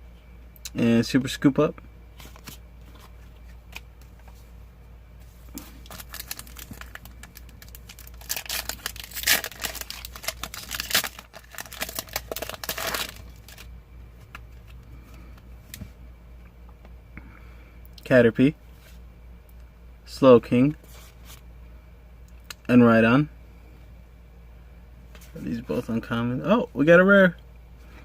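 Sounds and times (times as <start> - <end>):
foil wrapper tearing and crinkling: 5.8 - 13.7.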